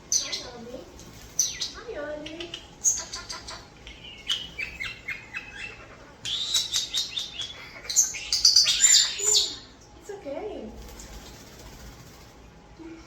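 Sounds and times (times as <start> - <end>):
starlings chattering: 0.0 - 12.4.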